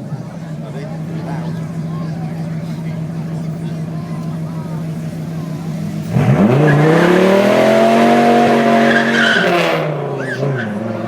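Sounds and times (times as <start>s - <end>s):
supercar engine revving: 0.4s - 11.0s
tyres squealing: 8.7s - 10.8s.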